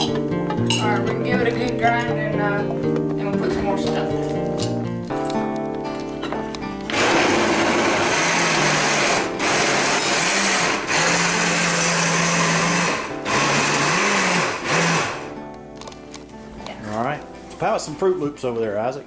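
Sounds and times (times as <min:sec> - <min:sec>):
blender grinding: 0:06.9 - 0:15.4.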